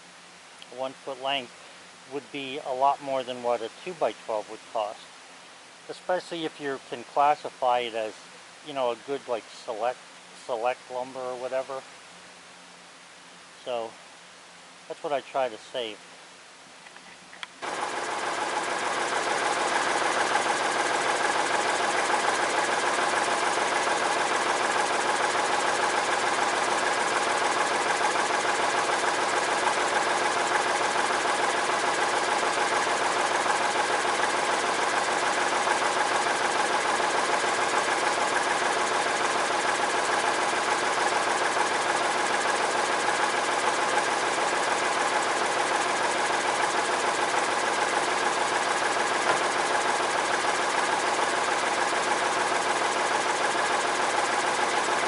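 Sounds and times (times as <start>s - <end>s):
sawmill engine running: 17.6s - 55.0s.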